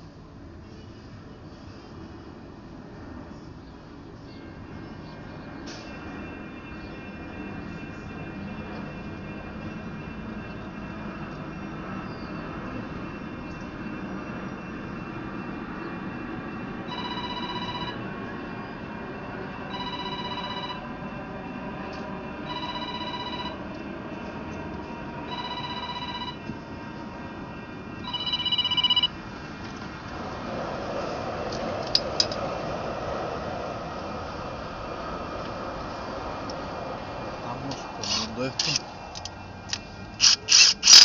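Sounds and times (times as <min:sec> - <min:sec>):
background hum: 0:00.0 - 0:41.0
telephone ringing: 0:16.9 - 0:18.0, 0:19.7 - 0:20.8, 0:22.4 - 0:23.6, 0:25.3 - 0:26.4, 0:28.0 - 0:29.2
sharp clicks: 0:37.7 - 0:41.0.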